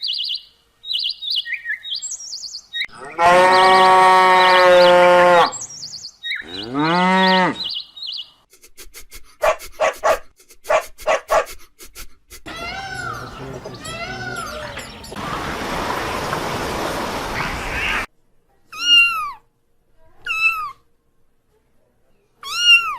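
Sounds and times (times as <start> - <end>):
cow mooing: 2.9 - 5.6, 6.4 - 7.6, 12.5 - 15.3.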